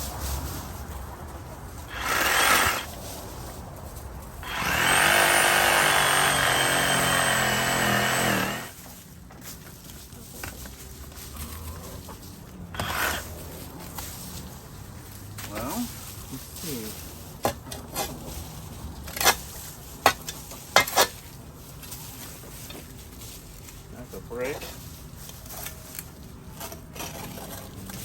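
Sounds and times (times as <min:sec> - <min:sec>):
scraping crunching bursts: 0:00.0 - 0:28.0
power tool whining: 0:01.9 - 0:02.9, 0:04.4 - 0:08.8.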